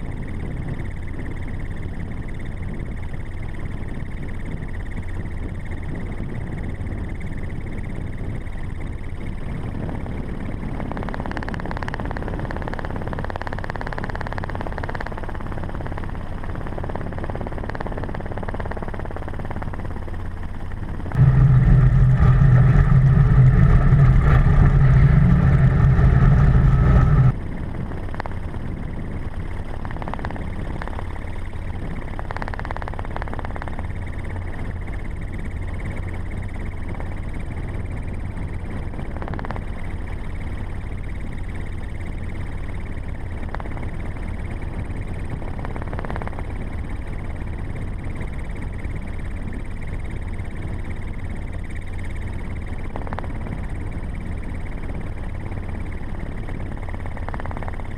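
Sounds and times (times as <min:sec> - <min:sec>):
loud deep engine sound: 0:20.2 - 0:44.7
truck engine and road noise: 0:20.8 - 0:27.4.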